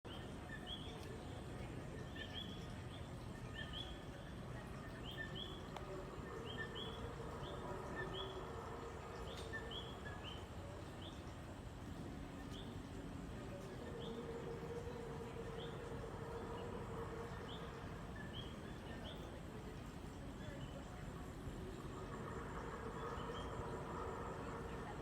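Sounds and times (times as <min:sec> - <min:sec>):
steady low hum: 0:00.1 - 0:25.0
tree frogs chirping: 0:00.1 - 0:25.0.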